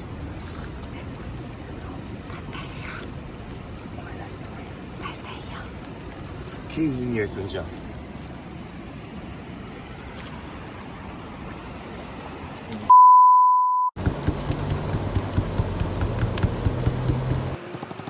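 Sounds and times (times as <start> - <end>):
campfire crackling: 0.0 - 12.8
crickets trilling: 0.0 - 12.9, 14.0 - 18.0
electronic censor beep: 12.9 - 14.0.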